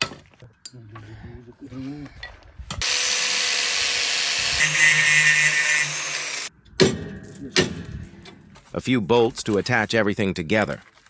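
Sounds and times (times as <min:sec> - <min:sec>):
power tool whining: 0:02.8 - 0:06.5.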